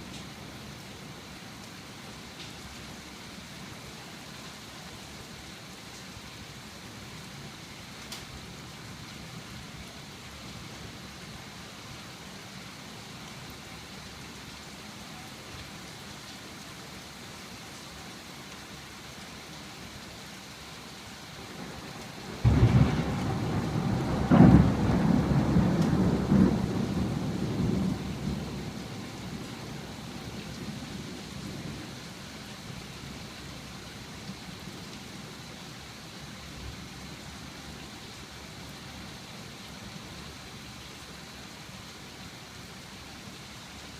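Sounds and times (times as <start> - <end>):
rain falling: 0.0 - 43.9
thunderclap rumbling: 22.4 - 29.4.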